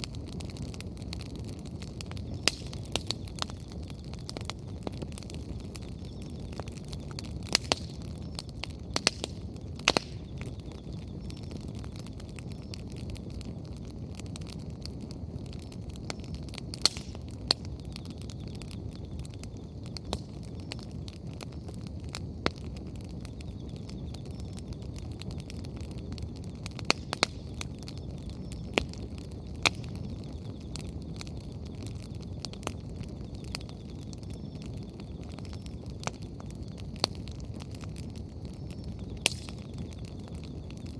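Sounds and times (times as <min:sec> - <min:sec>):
bonfire crackling: 0:00.0 - 0:40.9
burning firewood popping: 0:00.0 - 0:40.9
low rush of flame: 0:00.0 - 0:40.9.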